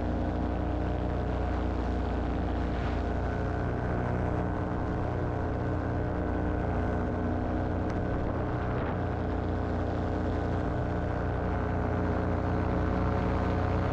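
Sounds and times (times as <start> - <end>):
paramotor engine and propeller: 0.0 - 13.9.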